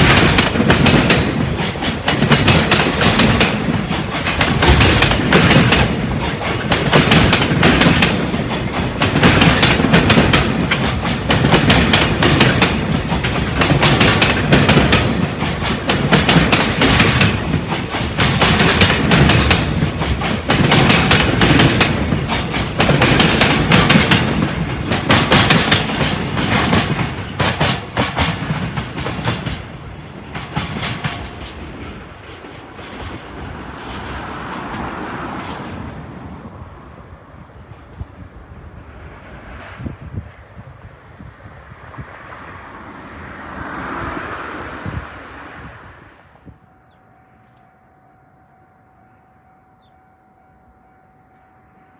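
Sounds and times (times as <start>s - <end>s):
train wheels clattering: 0.0s - 35.6s.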